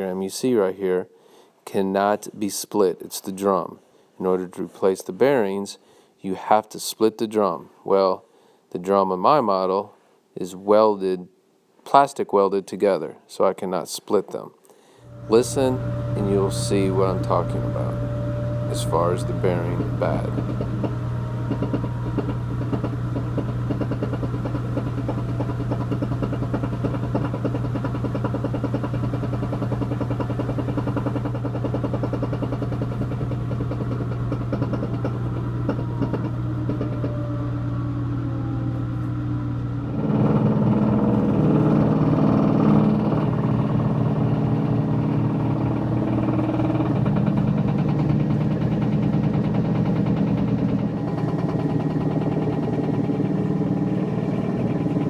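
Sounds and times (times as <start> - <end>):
washing machine spinning: 15.1 - 55.0.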